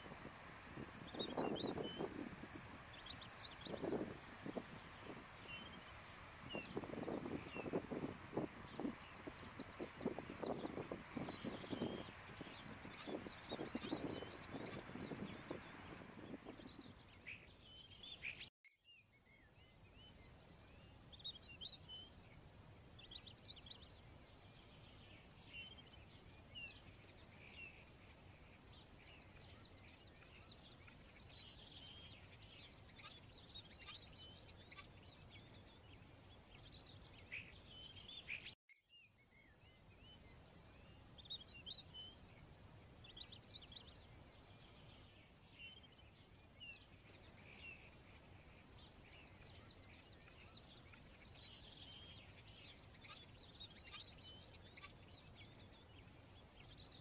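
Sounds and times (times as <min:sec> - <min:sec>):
birds chirping and twittering: 0:00.0 - 0:57.0
low steady hiss: 0:00.0 - 0:57.0.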